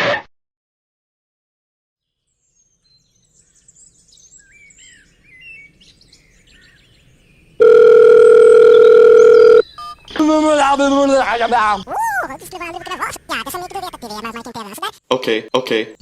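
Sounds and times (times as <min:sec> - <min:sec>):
loud steady beep tone: 0:07.6 - 0:10.0.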